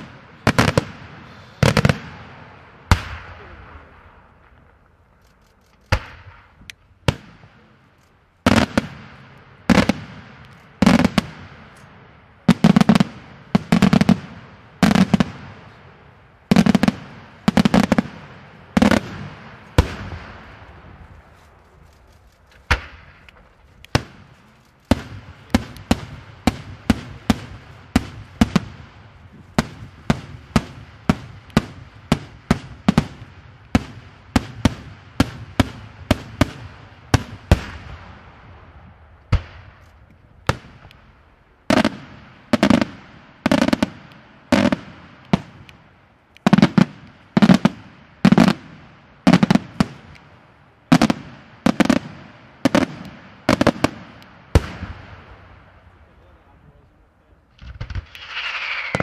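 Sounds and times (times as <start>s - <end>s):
firework bangs echoing: 0.0s - 4.7s, 8.4s - 21.3s, 22.6s - 39.8s, 40.5s - 56.0s, 57.6s - 59.0s
firework cracks: 0.0s - 56.0s, 57.5s - 59.0s.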